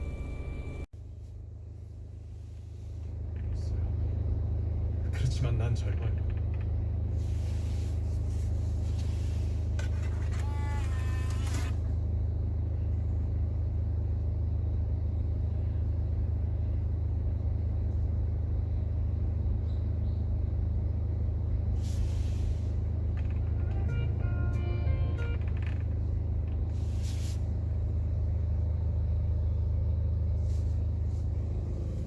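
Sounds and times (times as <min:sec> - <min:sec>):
diesel engine idling: 0:00.0 - 0:32.0
rising electronic tones: 0:23.4 - 0:25.5.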